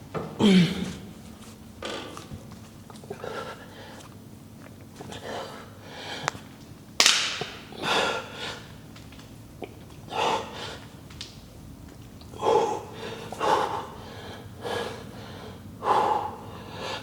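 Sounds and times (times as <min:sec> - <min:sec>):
person breathing hard: 0:03.1 - 0:04.1, 0:05.0 - 0:06.4, 0:07.8 - 0:08.7, 0:10.1 - 0:10.9, 0:12.4 - 0:17.0.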